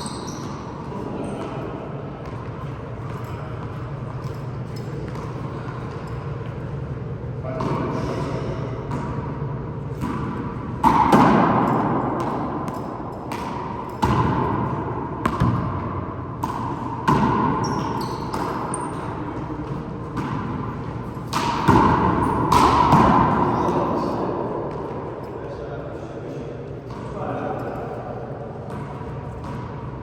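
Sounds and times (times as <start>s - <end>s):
handball smacking off wall: 21.3s - 23.7s.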